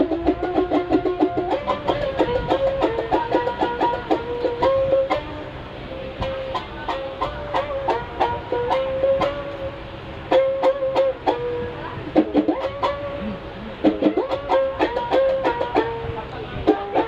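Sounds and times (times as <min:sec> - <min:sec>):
plucked string instrument melody: 0:00.0 - 0:17.0.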